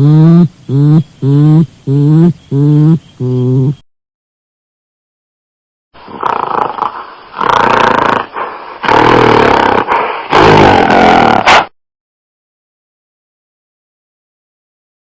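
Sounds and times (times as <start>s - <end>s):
animal making rough calls: 6.1s - 11.7s.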